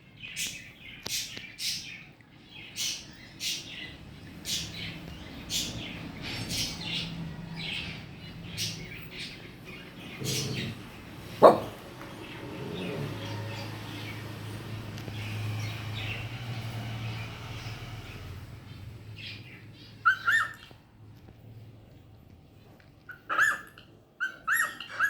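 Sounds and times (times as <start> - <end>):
cockatiel chirping: 20.0 - 20.7.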